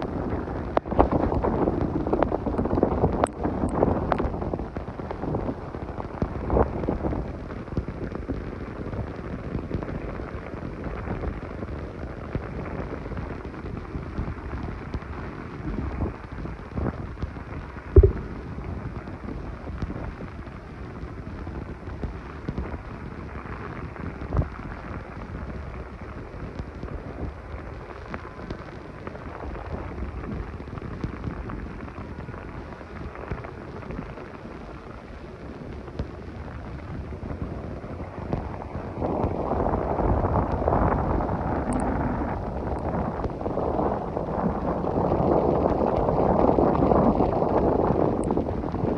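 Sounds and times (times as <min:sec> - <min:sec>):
gusting wind: 0:00.0 - 0:48.9
heavy rain: 0:00.0 - 0:48.9
sharp knocks: 0:18.0 - 0:18.4.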